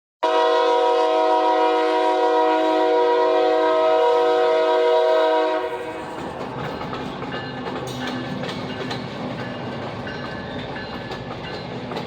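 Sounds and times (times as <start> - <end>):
locomotive air horn blast: 0.2 - 6.1.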